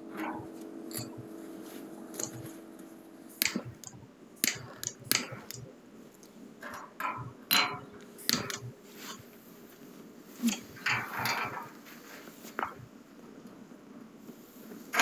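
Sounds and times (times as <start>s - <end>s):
hard objects clicking and clinking: 0.0s - 5.6s.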